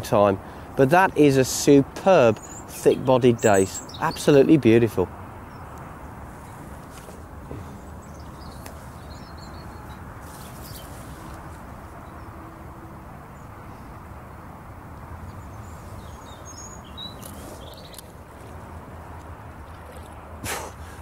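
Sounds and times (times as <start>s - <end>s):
small birds chirping: 2.3s - 4.6s, 5.4s - 12.4s, 15.2s - 18.6s
flowing river water: 5.1s - 21.0s.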